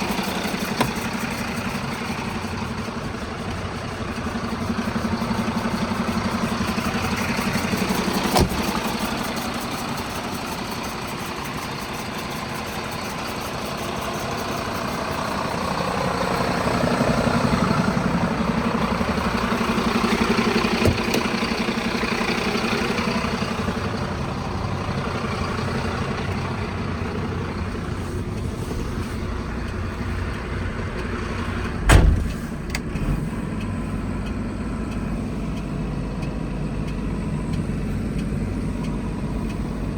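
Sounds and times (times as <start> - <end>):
diesel truck engine running: 0.0 - 39.9
sharp knocks: 31.8 - 32.8.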